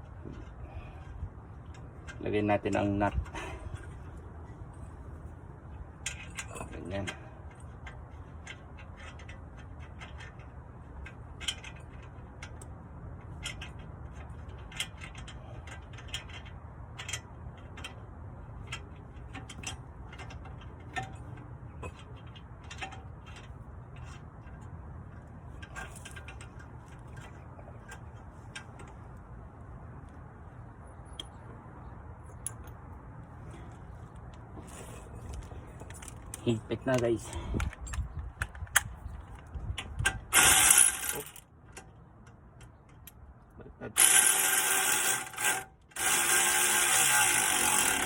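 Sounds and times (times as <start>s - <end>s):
ratchet wrench clicking: 40.3s - 41.4s, 44.0s - 48.0s.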